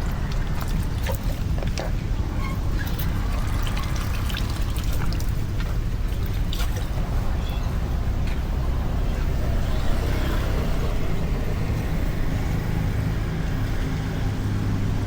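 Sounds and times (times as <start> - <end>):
water splashing: 0.0 - 8.2
floodwater rushing: 0.0 - 12.8.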